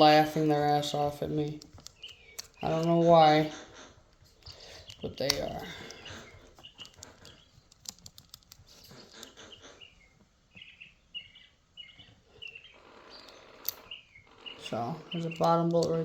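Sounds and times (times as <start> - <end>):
pet birds chirping: 0.0 - 16.0
faint clicks: 1.2 - 10.8, 12.0 - 14.0.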